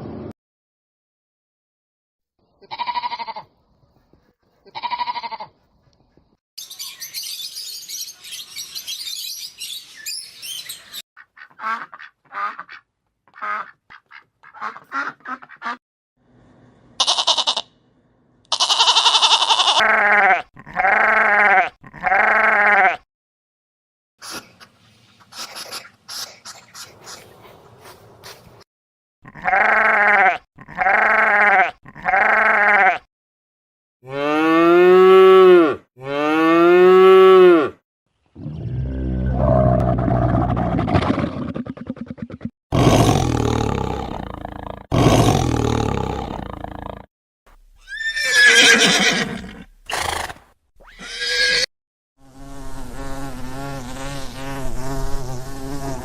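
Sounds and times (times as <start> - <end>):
goats bleating: 2.6 - 3.5, 4.7 - 5.5, 17.0 - 17.6, 18.5 - 23.0, 29.2 - 33.1.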